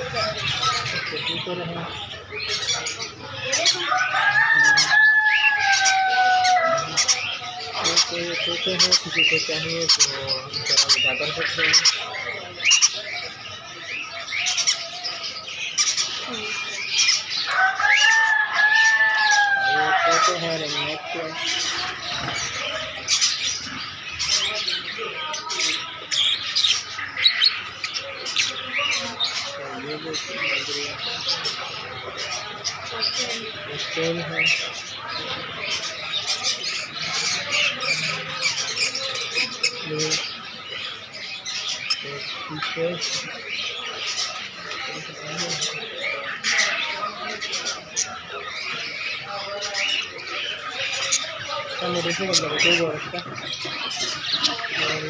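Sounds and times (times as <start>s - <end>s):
caged birds chirping and squawking: 0.0s - 55.0s
rooster crowing: 3.6s - 7.0s, 17.4s - 20.3s.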